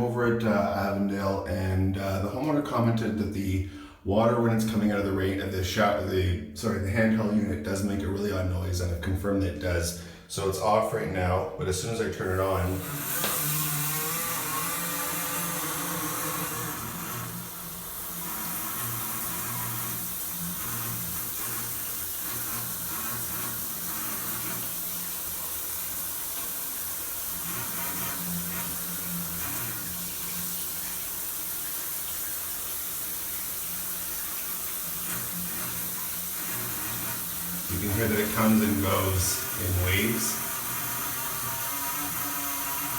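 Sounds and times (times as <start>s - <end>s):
water spraying from shower: 12.4s - 42.9s.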